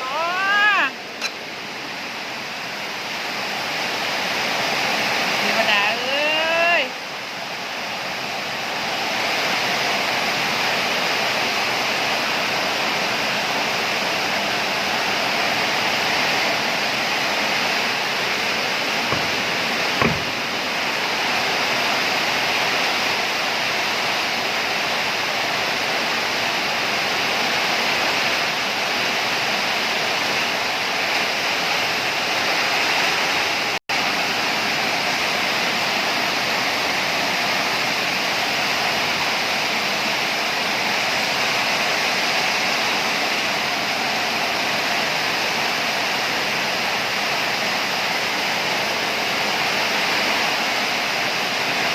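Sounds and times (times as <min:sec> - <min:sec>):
heavy rain pouring: 0:00.0 - 0:51.9
brief knock: 0:19.1 - 0:20.4.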